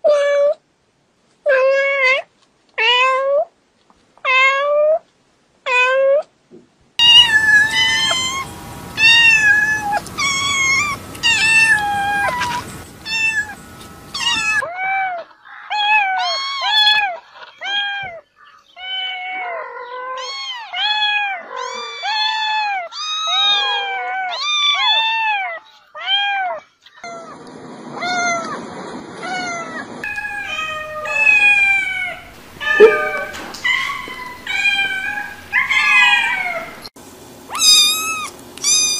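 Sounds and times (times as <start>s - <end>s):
cats meowing: 7.0s - 27.3s, 29.2s - 36.9s, 37.5s - 38.9s.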